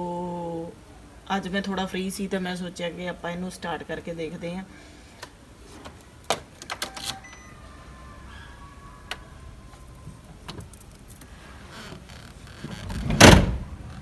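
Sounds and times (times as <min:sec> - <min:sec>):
car door and keys clicking: 0:06.2 - 0:07.5
faint steady high tone: 0:06.6 - 0:11.3.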